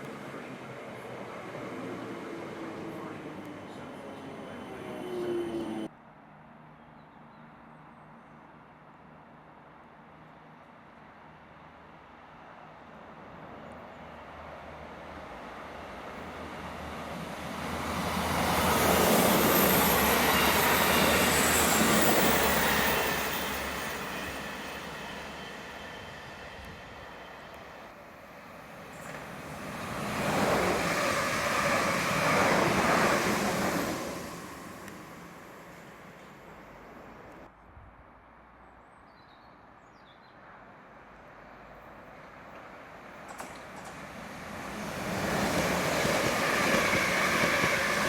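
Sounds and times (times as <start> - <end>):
electric train passing: 0.0 - 5.9, 13.3 - 37.5, 42.2 - 48.0.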